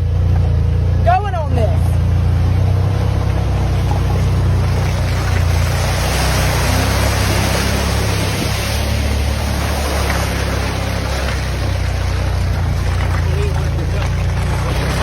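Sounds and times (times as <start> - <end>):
vehicle engine running: 0.0 - 15.0
constant rushing noise: 2.3 - 15.0.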